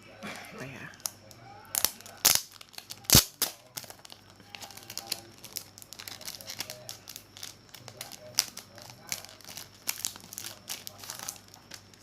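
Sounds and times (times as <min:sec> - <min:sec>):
packaging crinkling: 0:01.0 - 0:12.0
sharp packaging snaps: 0:01.0 - 0:12.0.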